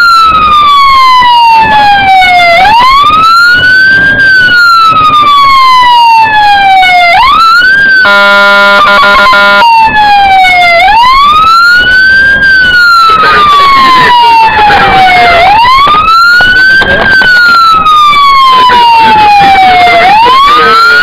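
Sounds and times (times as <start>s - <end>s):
fire truck wail siren: 0.0s - 21.0s
horn blast: 8.0s - 9.8s.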